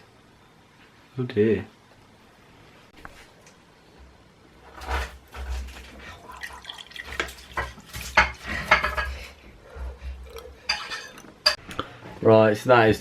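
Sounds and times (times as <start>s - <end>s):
glass and crockery clinks: 10.3s - 11.6s.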